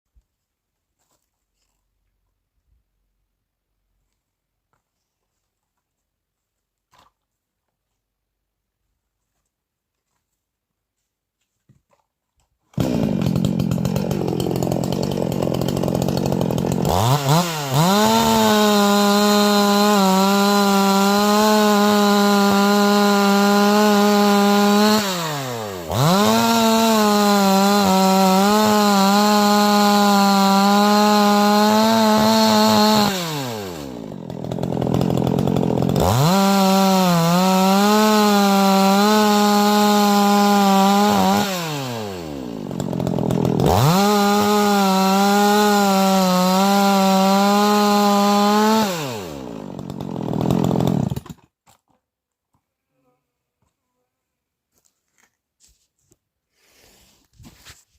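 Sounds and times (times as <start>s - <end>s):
chainsaw engine revving: 12.8s - 51.4s.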